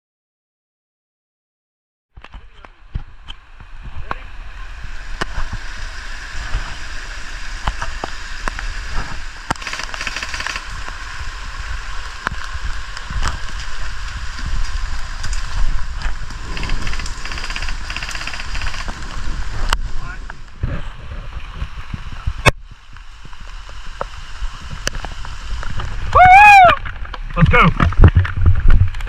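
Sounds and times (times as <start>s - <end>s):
heavy rain hissing: 2.6s - 28.3s
sharp clicks: 9.5s - 10.7s, 16.5s - 19.0s
fast rattling: 9.6s - 10.7s, 16.5s - 19.0s.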